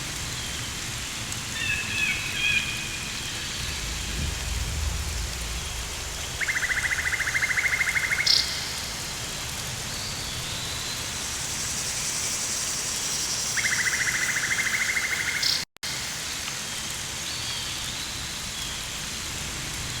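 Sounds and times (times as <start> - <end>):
insects: 0.0 - 20.0
rain hissing: 0.0 - 20.0.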